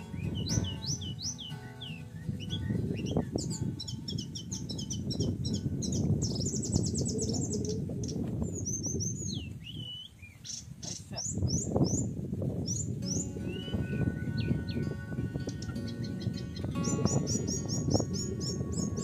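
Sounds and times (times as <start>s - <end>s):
down-slurred bird whistles: 0.0s - 7.8s, 8.6s - 10.6s, 13.0s - 14.9s
small birds chirping: 0.0s - 19.0s.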